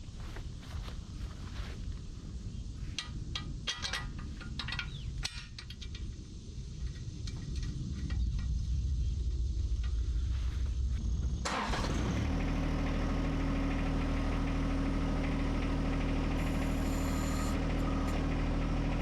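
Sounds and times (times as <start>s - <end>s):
diesel tractor engine starting and idling: 11.4s - 19.0s.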